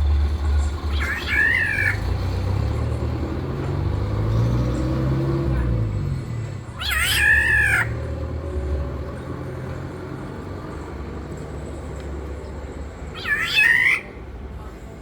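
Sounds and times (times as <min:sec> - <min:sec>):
harsh nasal bird call: 0:00.9 - 0:02.2, 0:13.2 - 0:14.2.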